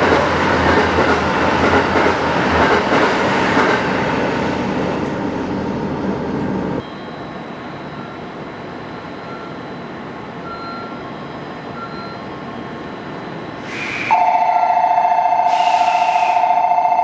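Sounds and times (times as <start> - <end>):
train humming: 0.0 - 17.0
air hiss: 13.6 - 14.2, 15.5 - 16.5
two-tone electronic departure bell: 14.1 - 15.5, 16.4 - 17.0.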